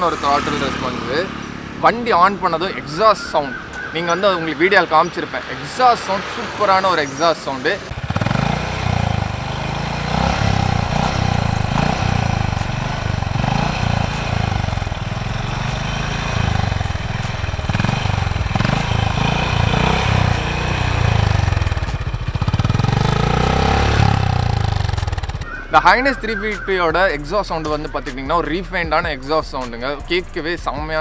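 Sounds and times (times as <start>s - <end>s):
motorcycle engine idling: 6.1s - 26.2s.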